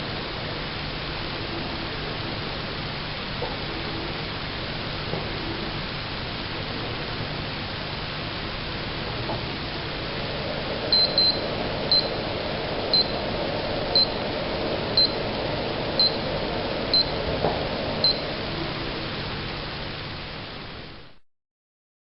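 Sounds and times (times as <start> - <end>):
short high electronic beeps: 11.0 - 12.2.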